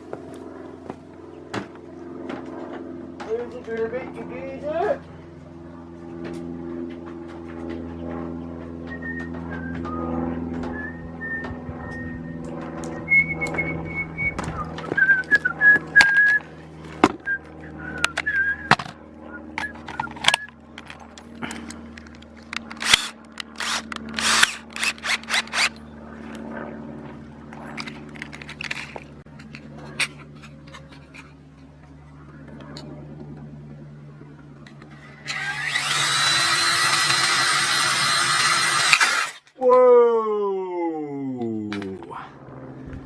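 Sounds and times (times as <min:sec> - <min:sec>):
steady low hum: 0:00.0 - 0:43.0
man whistling: 0:08.9 - 0:10.1, 0:10.7 - 0:12.4, 0:13.0 - 0:16.5, 0:17.2 - 0:18.8.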